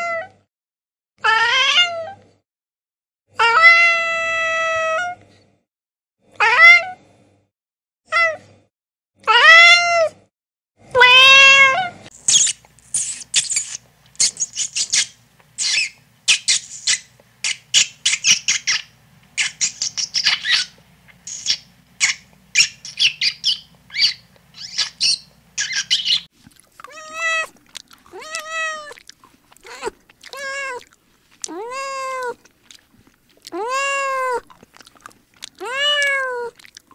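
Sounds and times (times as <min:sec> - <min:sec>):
kittens meowing: 0:11.0 - 0:29.0, 0:29.6 - 0:30.9, 0:31.5 - 0:32.4, 0:33.5 - 0:34.5, 0:35.6 - 0:36.6
guinea pig squeaking: 0:12.1 - 0:29.0, 0:29.6 - 0:32.8.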